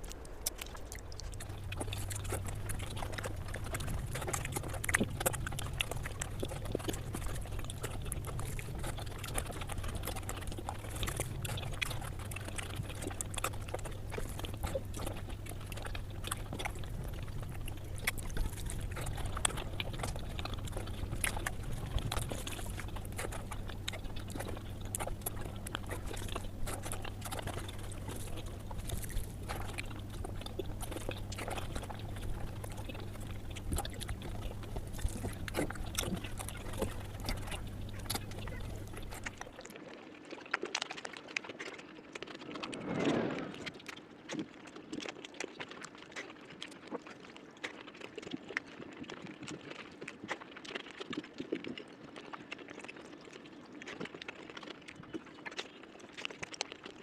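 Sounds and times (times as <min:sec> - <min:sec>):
steady low hum: 0:00.0 - 0:39.6
person chewing and smacking: 0:00.0 - 0:42.8, 0:43.6 - 0:57.0.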